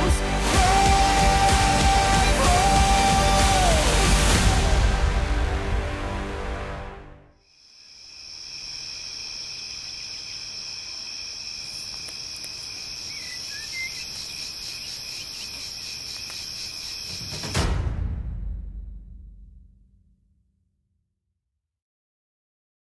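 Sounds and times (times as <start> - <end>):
crickets chirping: 7.4 - 17.6
bird chirp: 12.9 - 17.2.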